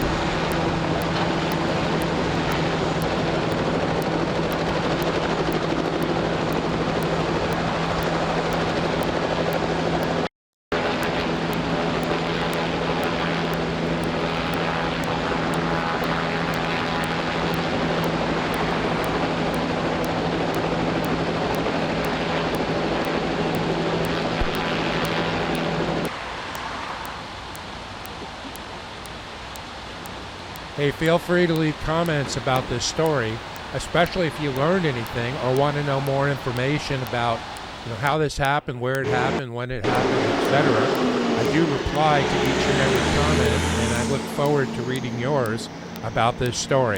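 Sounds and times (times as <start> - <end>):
loud engine drone: 0.0 - 26.6, 39.0 - 46.9.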